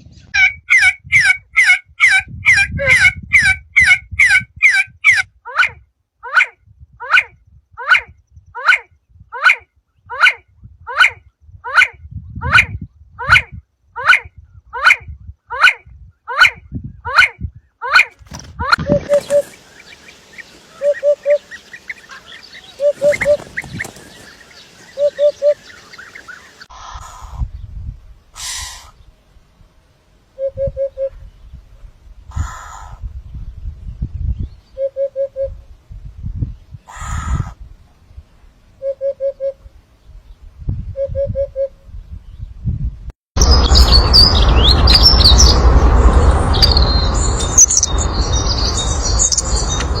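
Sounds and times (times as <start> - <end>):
higher bird chirps: 18.8 - 27.0, 43.4 - 50.0
loud steady noise: 43.4 - 50.0.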